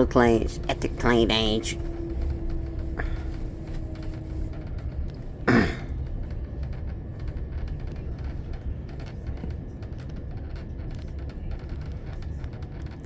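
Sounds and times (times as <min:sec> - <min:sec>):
train rumble from inside carriage: 0:00.0 - 0:13.0.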